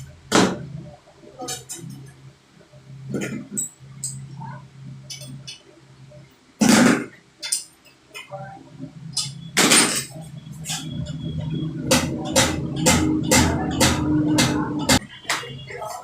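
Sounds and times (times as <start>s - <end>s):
low steady hum: 0.0s - 16.0s
evenly spaced strikes: 10.7s - 15.4s.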